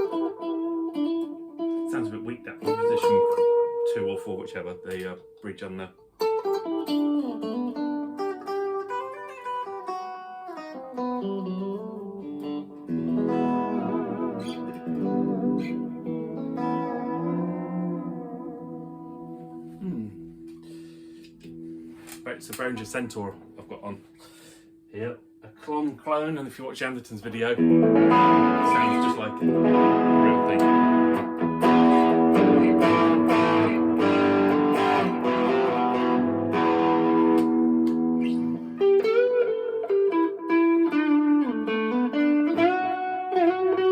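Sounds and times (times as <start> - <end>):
electric guitar strummed chords: 0.0 - 23.9, 27.5 - 43.9
electric guitar single notes: 0.0 - 24.2, 27.6 - 43.9.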